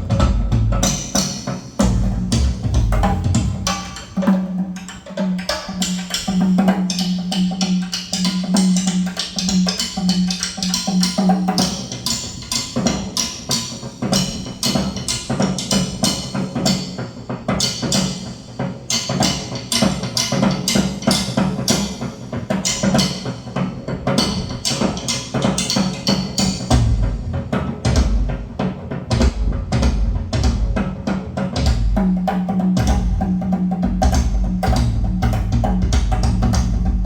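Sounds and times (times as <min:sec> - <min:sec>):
pulsing low drum tone: 0:00.0 - 0:01.2, 0:01.8 - 0:03.9, 0:26.7 - 0:37.0
rapid drum and percussion strikes: 0:00.0 - 0:37.0.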